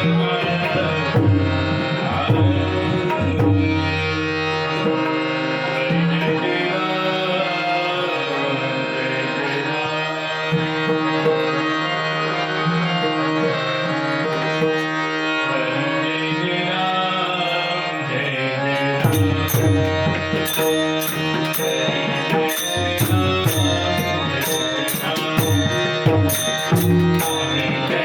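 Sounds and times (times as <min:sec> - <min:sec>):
harmonium chords: 0:00.0 - 0:28.0
hand drums playing: 0:19.0 - 0:28.0.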